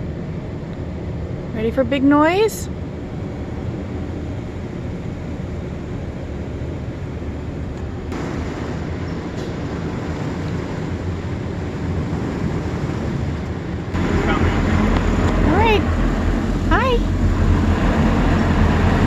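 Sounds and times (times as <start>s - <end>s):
car wash machinery rumbling: 0.0s - 19.0s.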